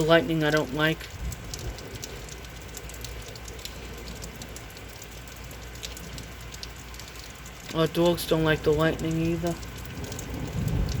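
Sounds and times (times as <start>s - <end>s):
heavy rain hissing: 0.0s - 11.0s
water drips and splashes: 0.0s - 11.0s.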